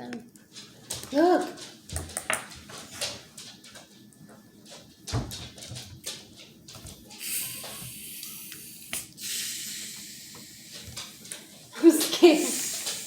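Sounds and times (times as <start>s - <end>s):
carbonation hissing from bottle: 7.1s - 13.0s.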